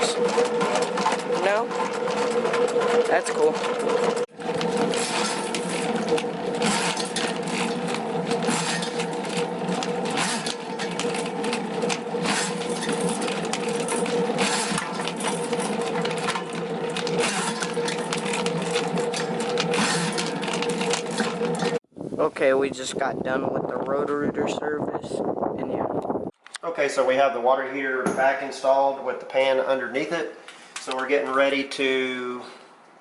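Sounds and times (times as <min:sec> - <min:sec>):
drain cleaning machine motor hum: 0:00.0 - 0:21.8
spinning cable rattling: 0:00.0 - 0:21.8.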